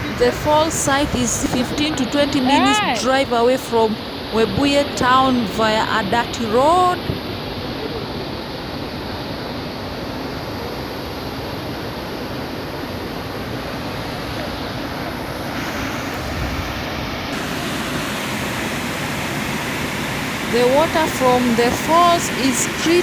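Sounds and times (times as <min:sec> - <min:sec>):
waterfall rushing: 0:00.0 - 0:05.6, 0:13.8 - 0:23.0.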